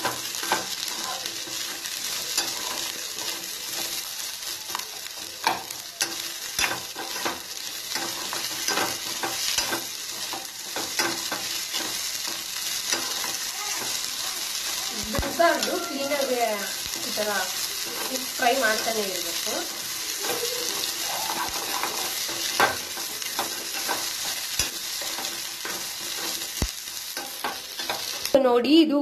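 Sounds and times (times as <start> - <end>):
food sizzling in a pan: 0.0 - 28.8.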